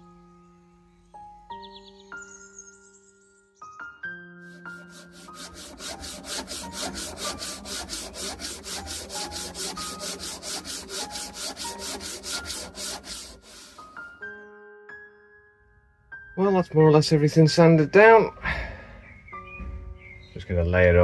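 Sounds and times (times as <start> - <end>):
hand tool rasping on wood: 4.5 - 14.1.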